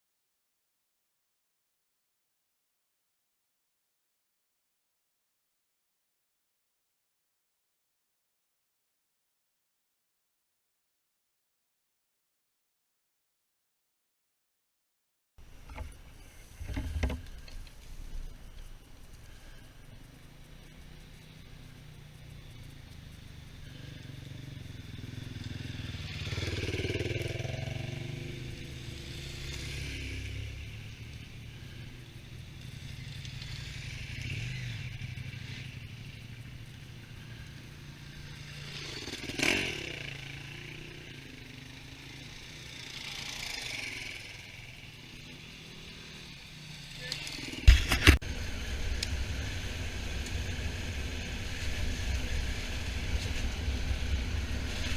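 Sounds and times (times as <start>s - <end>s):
motorcycle engine running: 15.4s - 54.9s.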